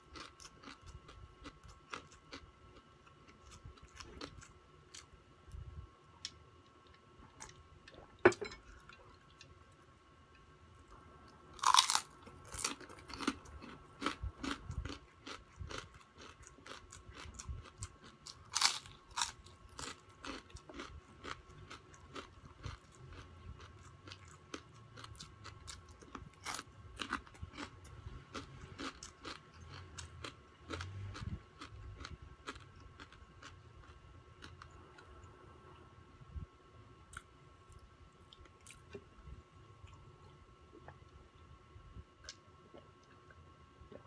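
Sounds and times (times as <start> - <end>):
crunching and chewing fried pork: 0.0 - 5.6, 11.3 - 35.2, 37.1 - 40.1.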